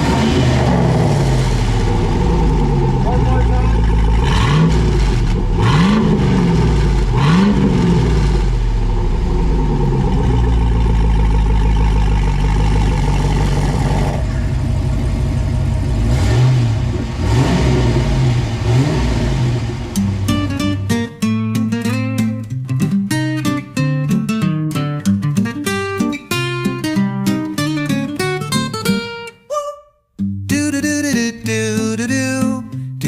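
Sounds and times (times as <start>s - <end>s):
engine revving: 0.0s - 21.1s.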